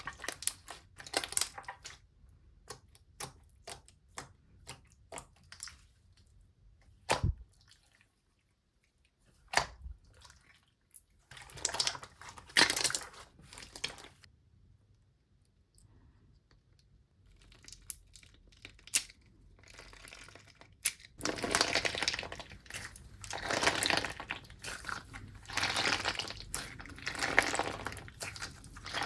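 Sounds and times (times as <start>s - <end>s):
slime crackling: 18.4s - 29.0s.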